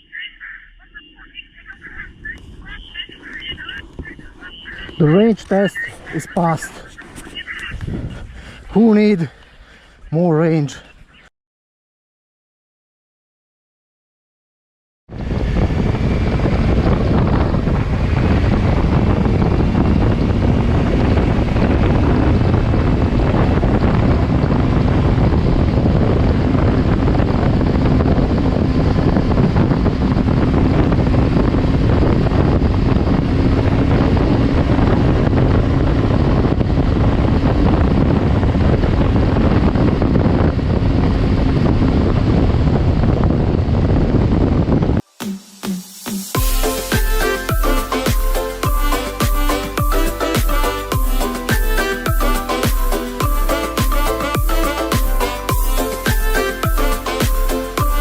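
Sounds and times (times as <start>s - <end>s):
faint engine drone: 0.0s - 8.5s, 15.1s - 45.0s
wind buffeting microphone: 1.7s - 11.3s, 15.1s - 45.0s.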